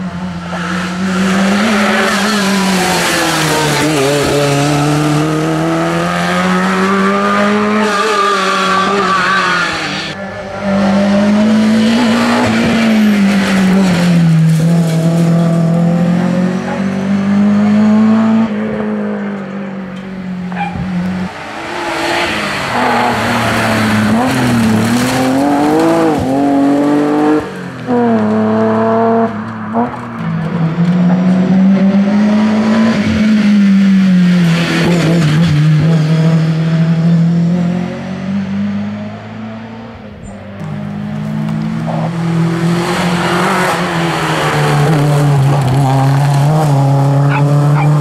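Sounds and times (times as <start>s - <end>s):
rally car engines revving: 0.0s - 48.0s
tyre squeal: 7.6s - 10.7s.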